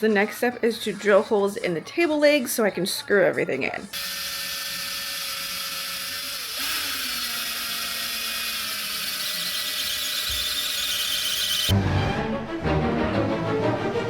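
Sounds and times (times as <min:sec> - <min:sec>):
power drill drilling wood: 0:04.0 - 0:11.7.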